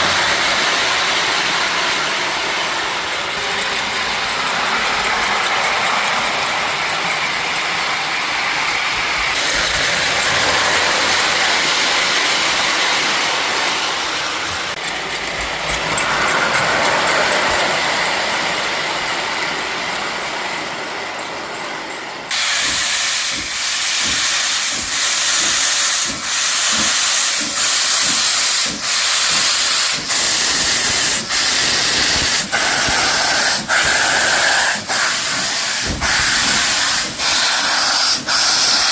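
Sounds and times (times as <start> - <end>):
steam locomotive hissing: 0.0 - 38.9
locomotive exhaust chuffs: 22.2 - 38.9.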